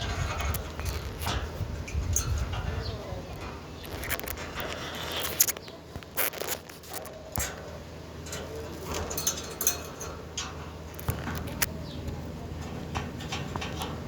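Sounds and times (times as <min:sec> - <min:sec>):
parrot pecking and nibbling: 0:03.8 - 0:07.5.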